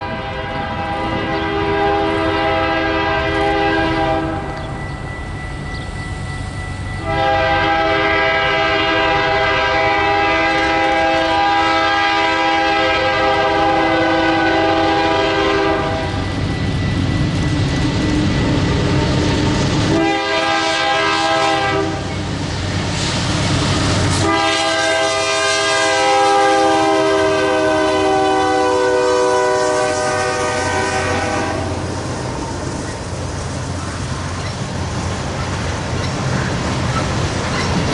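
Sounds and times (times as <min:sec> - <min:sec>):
locomotive air horn blasts: 0:00.0 - 0:04.6, 0:07.0 - 0:16.3, 0:19.9 - 0:22.2, 0:24.1 - 0:31.9
train rumbling past: 0:00.0 - 0:37.9.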